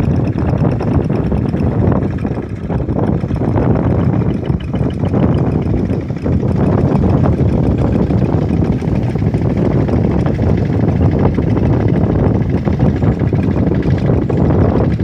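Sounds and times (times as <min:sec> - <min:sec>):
engine low rumble: 0:00.0 - 0:15.0.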